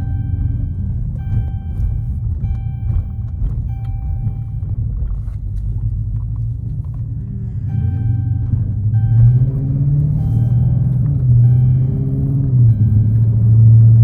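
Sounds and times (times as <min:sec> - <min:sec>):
car engine rumble in cabin: 0:00.0 - 0:14.0.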